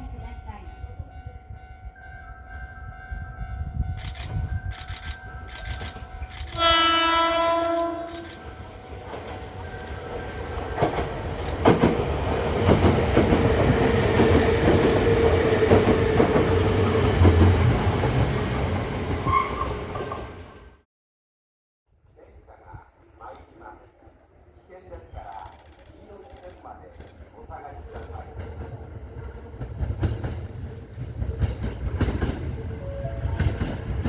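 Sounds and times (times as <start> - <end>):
train wheels rumbling: 0.1 - 20.5, 27.8 - 34.0
train horn: 6.5 - 8.4
clickety-clack over rail joints: 7.4 - 17.5, 27.9 - 34.0.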